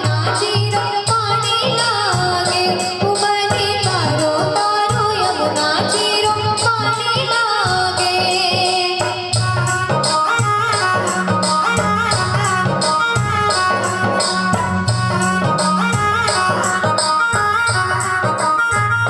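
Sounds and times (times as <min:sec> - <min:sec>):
bass line: 0:09.4 - 0:19.0
jingling rattling percussion: 0:09.4 - 0:19.0
ornamented melody: 0:09.4 - 0:19.0.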